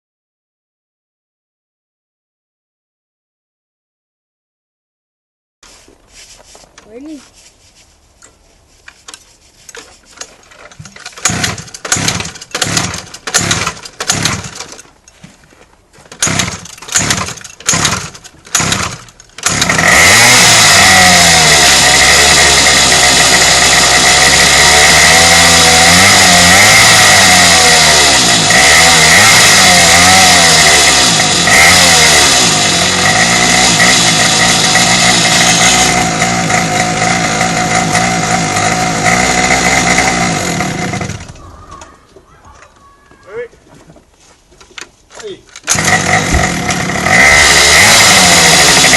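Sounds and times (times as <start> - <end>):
pull starter cranking: 9.7 - 15.0, 16.1 - 41.9, 45.5 - 48.9
small engine running: 11.1 - 14.7, 16.2 - 41.5, 45.6 - 48.9.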